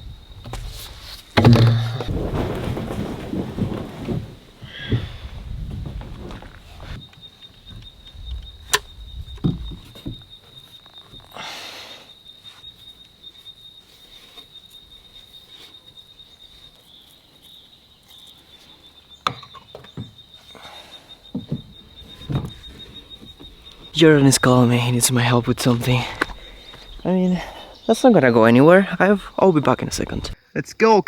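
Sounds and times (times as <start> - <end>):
plastic pipe clicks and knocks: 1.4 - 2.1.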